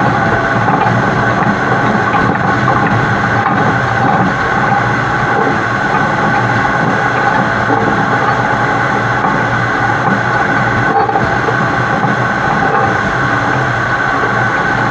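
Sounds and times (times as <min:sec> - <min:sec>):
truck engine: 0:00.0 - 0:14.9
truck tyre and running-gear noise: 0:00.0 - 0:14.9.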